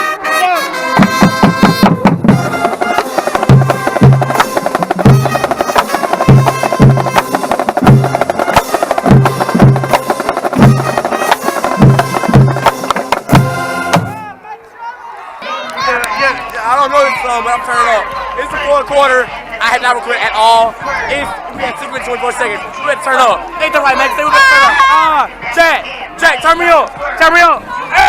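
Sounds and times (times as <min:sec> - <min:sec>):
marching band playing: 0:00.0 - 0:14.5, 0:15.8 - 0:28.0
snare drum strokes: 0:00.9 - 0:14.2.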